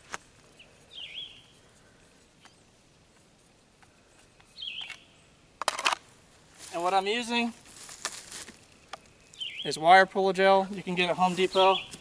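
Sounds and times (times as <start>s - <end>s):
bird chirping faintly: 3.9s - 5.4s, 8.6s - 9.9s.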